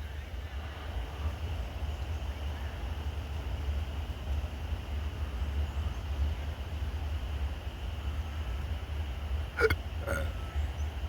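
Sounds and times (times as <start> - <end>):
diesel train rumble: 0.0 - 11.0.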